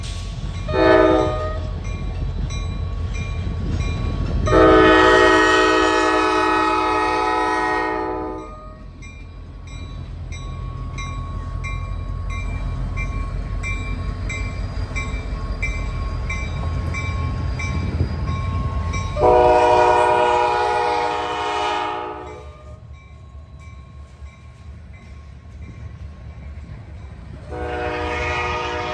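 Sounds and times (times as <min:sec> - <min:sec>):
low rumble of passing train: 0:00.0 - 0:28.9
locomotive horn blasts: 0:00.7 - 0:01.7, 0:04.5 - 0:08.7, 0:19.2 - 0:22.8, 0:27.4 - 0:28.9.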